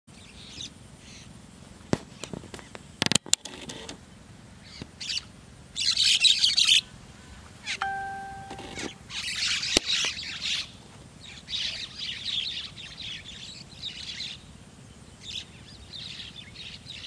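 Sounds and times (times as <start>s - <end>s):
steady held note: 7.8s - 9.2s.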